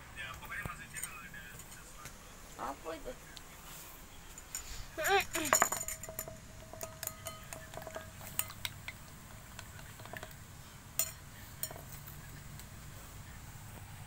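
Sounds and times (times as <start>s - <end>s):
small hard objects clinking: 4.2s - 12.8s.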